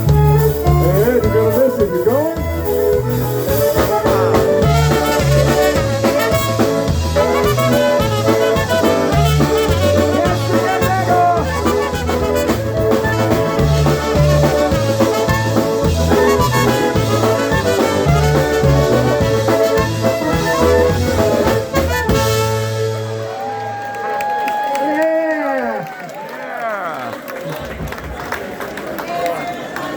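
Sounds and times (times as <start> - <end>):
oom-pah bass: 0.0 - 23.7
polka band brass melody: 0.0 - 23.8.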